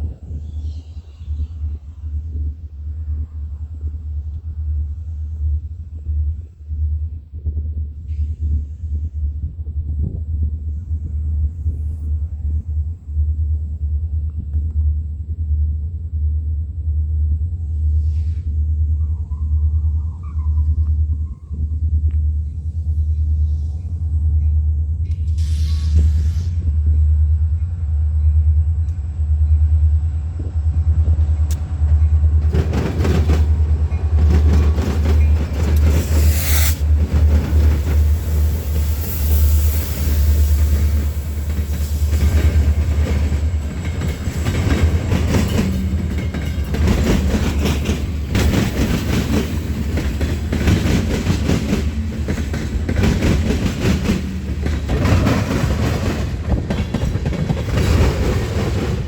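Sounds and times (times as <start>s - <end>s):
steady low rumble: 0.0s - 18.0s
train wheels clattering on rails: 31.2s - 59.0s.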